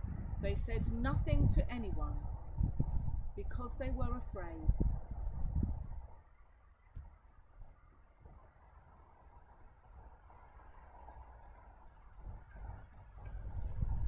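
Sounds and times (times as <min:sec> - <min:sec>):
low rumble: 0:00.0 - 0:06.1.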